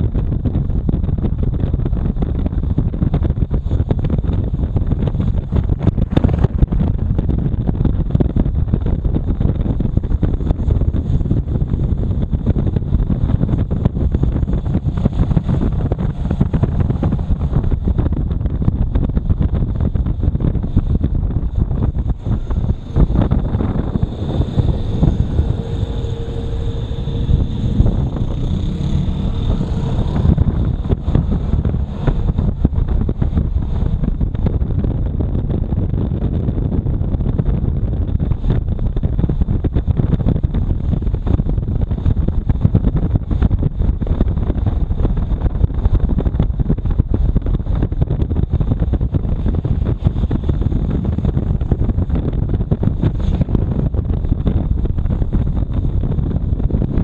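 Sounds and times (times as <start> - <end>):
motorcycle engine and road rumble: 0.0 - 57.0
wind rushing over microphone: 0.0 - 57.0
faint whine: 12.2 - 34.7.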